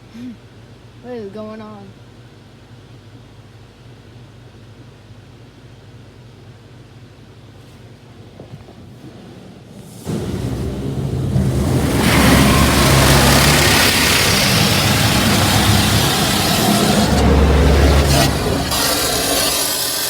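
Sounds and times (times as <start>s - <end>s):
high-pressure water spraying on car: 9.6s - 20.0s.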